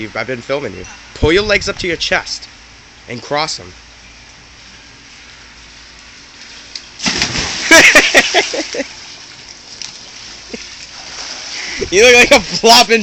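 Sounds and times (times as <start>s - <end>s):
water sloshing: 6.3s - 11.8s
big splash into water: 7.0s - 8.8s.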